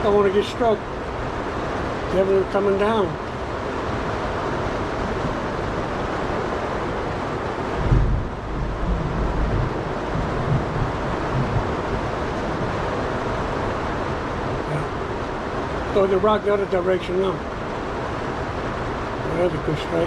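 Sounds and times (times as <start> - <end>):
heavy rain and wind: 0.0 - 20.0
low rumble: 4.6 - 16.4.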